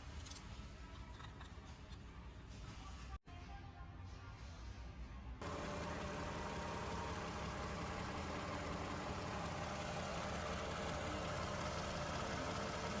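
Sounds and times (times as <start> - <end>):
car engine idling: 5.4 - 13.0.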